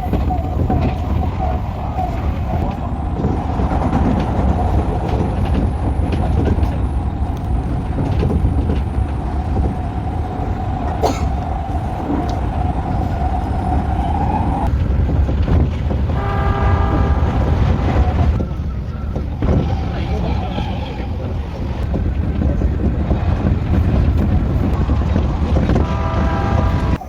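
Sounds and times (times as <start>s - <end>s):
electric train rumbling: 0.0s - 27.0s
train horn toot: 16.1s - 18.4s, 24.8s - 27.0s
train motor whine: 23.3s - 27.0s.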